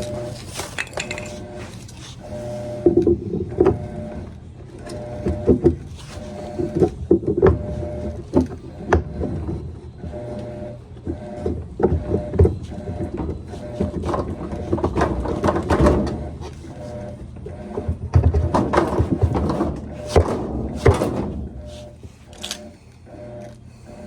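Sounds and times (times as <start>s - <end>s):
electric power driver whirring: 0.0s - 0.5s, 1.4s - 24.0s.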